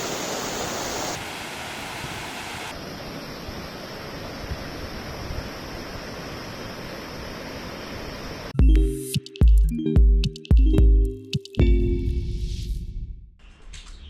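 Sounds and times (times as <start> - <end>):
waterfall rushing: 0.0 - 2.8.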